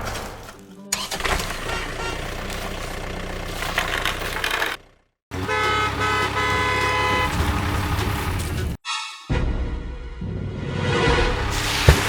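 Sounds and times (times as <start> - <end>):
car horn honking: 1.0 - 4.6, 5.3 - 8.5
car engine running: 1.0 - 8.8.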